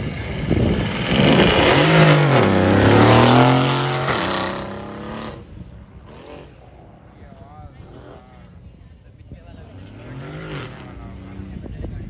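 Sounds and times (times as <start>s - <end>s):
car engine revving on launch: 0.0s - 6.7s, 9.8s - 11.5s.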